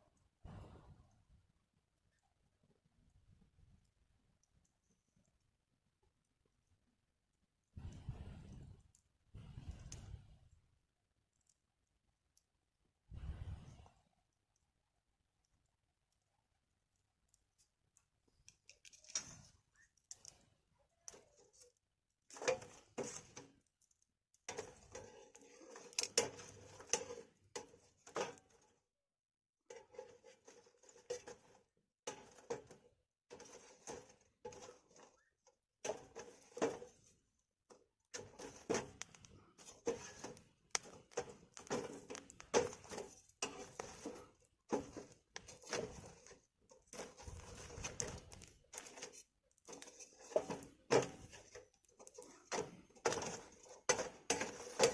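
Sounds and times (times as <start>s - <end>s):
firewood crackling and popping: 7.8s - 10.7s, 15.4s - 28.6s, 30.5s - 37.4s, 38.1s - 54.9s.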